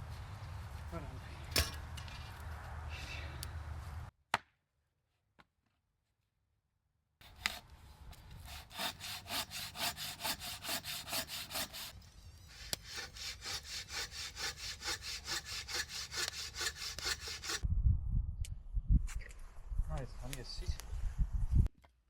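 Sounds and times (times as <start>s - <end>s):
hand saw cutting wood: 7.2s - 17.6s.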